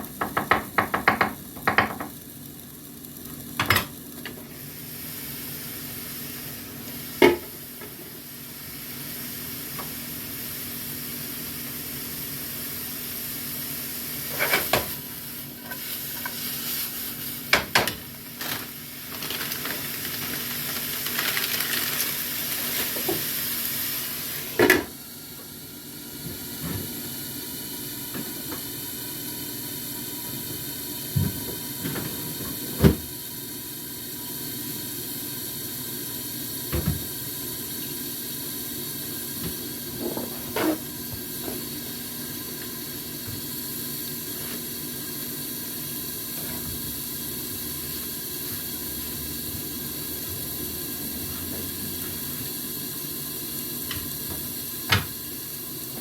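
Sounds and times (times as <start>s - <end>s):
food sizzling in a pan: 0.0s - 56.0s.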